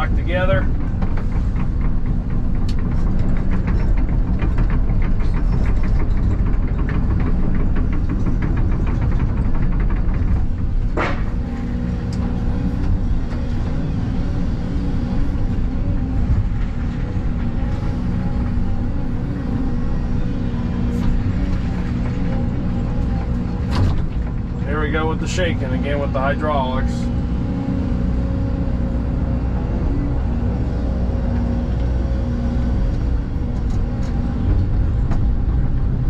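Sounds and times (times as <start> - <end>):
excavator engine running: 0.0 - 36.0
hydraulics working: 0.0 - 36.0
fast rattle of knocks: 0.6 - 13.6, 16.0 - 26.0.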